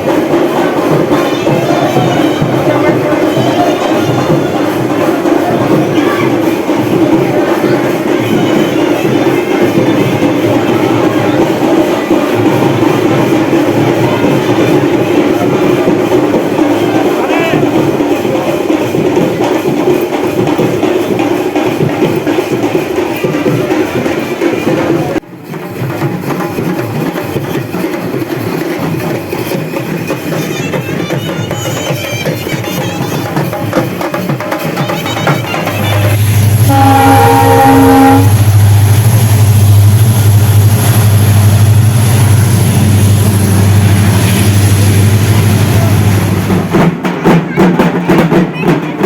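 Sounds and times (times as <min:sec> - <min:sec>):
train horn blast: 0:36.2 - 0:39.2.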